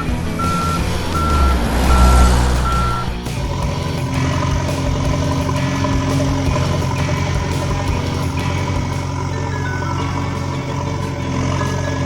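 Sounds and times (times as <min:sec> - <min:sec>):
truck reversing alarm beeping: 0:00.0 - 0:03.4, 0:09.3 - 0:10.4
deep rumble: 0:00.0 - 0:05.2
vehicle hum: 0:00.0 - 0:12.0.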